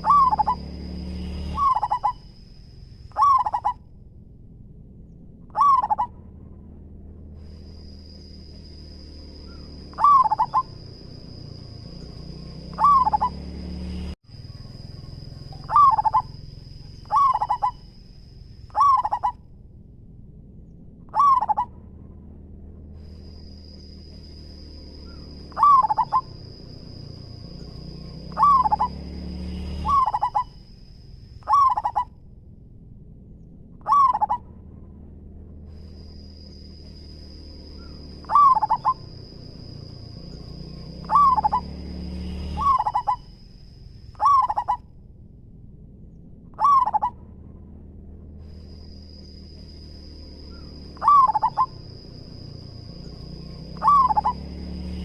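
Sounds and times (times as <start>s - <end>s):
dove cooing: 0.0s - 0.7s, 1.6s - 2.2s, 3.1s - 3.8s, 5.5s - 6.1s, 9.5s - 11.8s, 12.6s - 13.4s, 14.5s - 16.4s, 17.0s - 17.9s, 18.7s - 19.4s, 21.1s - 21.7s, 25.1s - 26.4s, 28.2s - 29.0s, 29.8s - 30.5s, 31.4s - 32.1s, 33.8s - 34.4s, 37.8s - 39.3s, 41.0s - 41.7s, 42.6s - 43.2s, 44.2s - 44.8s, 46.6s - 47.2s, 50.5s - 52.0s, 53.7s - 54.5s.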